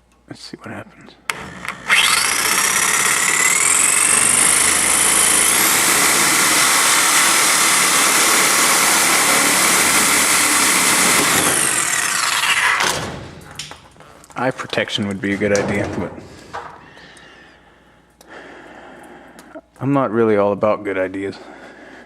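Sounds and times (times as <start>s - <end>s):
electric cutting tool whining: 1.3s - 13.0s.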